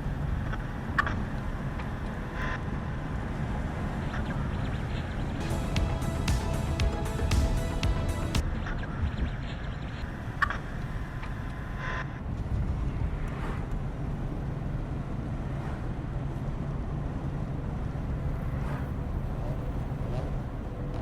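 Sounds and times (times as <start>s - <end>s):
car engine droning: 1.4s - 8.6s.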